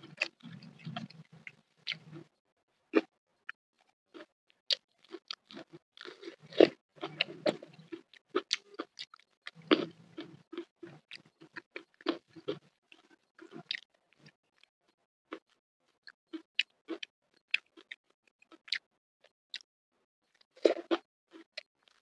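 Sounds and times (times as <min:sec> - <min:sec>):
person crunching food: 0:05.0 - 0:12.6.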